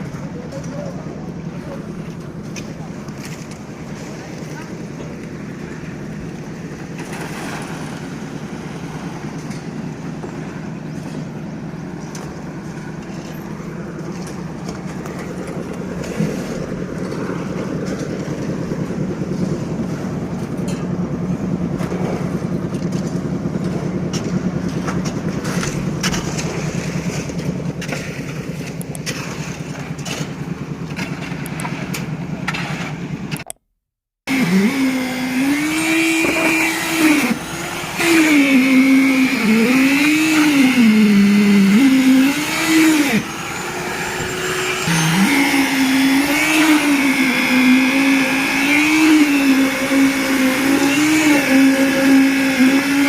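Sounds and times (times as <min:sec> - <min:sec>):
engine running: 0:00.0 - 0:53.0
machine with rising and falling pitch: 0:34.3 - 0:53.0.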